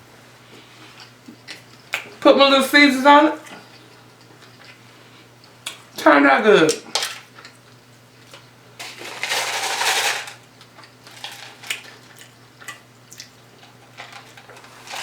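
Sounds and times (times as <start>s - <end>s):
loud rough eating noise: 8.2s - 15.0s.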